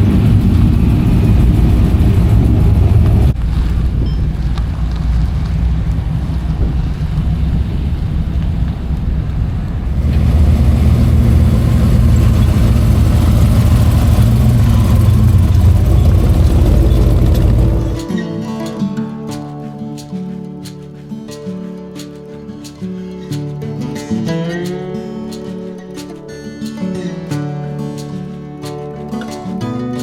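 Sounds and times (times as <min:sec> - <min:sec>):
truck engine running: 0:00.0 - 0:18.1.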